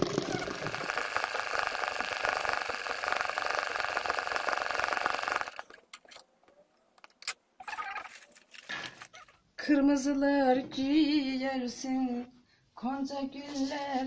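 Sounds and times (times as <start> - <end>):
sewing machine stitching: 0.0 - 5.8.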